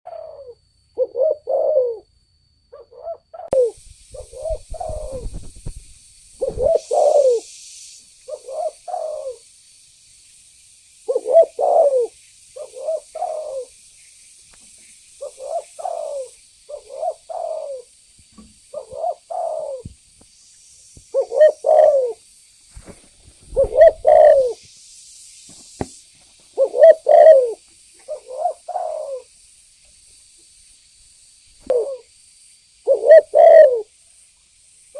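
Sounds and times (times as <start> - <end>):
dove cooing: 0.1 - 2.1, 2.8 - 5.8, 6.4 - 7.5, 8.3 - 9.4, 11.1 - 13.7, 15.2 - 17.9, 18.7 - 19.9, 21.1 - 22.2, 23.5 - 24.6, 26.6 - 29.3, 31.6 - 32.1, 32.9 - 33.9.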